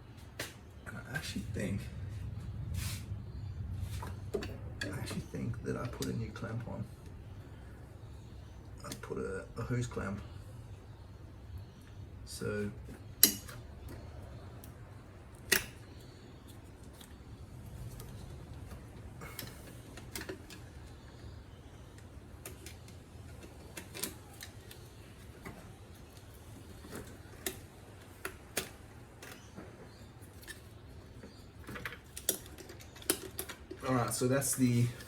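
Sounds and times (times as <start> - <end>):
low steady hum: 0.0 - 35.0
connectors unclipping clicks: 14.6 - 17.2.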